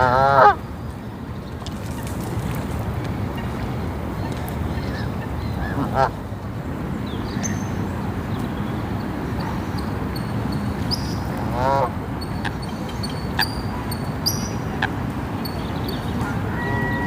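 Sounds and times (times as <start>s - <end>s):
small birds chirping: 12.1s - 17.0s
goose honk: 16.2s - 17.0s.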